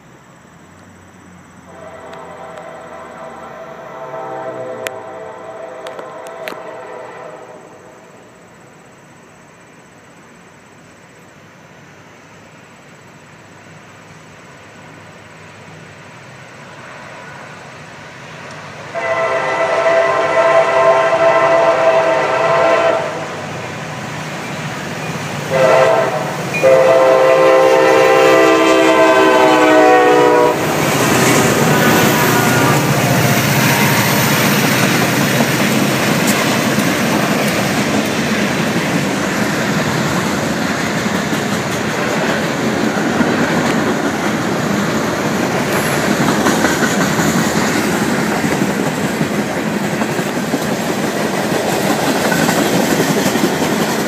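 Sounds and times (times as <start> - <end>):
diesel engines: 0.0 - 9.0, 11.3 - 54.0
locomotive horn blasts: 1.7 - 8.0, 19.0 - 23.3, 25.5 - 30.8, 31.4 - 34.2
freight train wheels rolling: 12.4 - 54.0.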